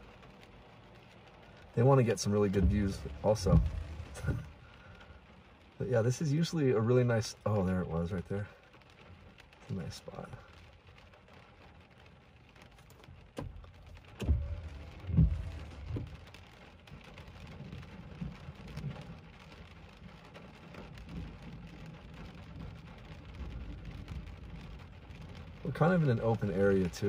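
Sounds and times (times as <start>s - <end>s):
heavy rain on car roof: 0.0s - 27.0s
raindrop hits: 0.0s - 27.0s
thunder rumbling: 1.7s - 4.9s, 14.1s - 19.4s.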